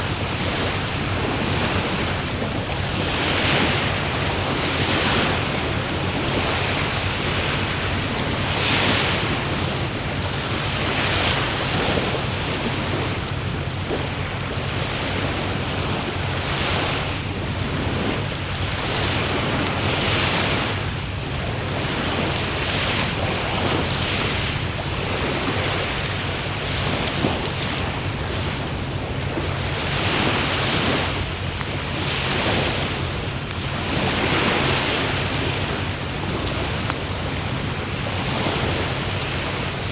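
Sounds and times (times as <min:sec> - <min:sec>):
bonfire flames rushing: 0:00.0 - 0:39.9
faint fire crackle: 0:00.0 - 0:39.9.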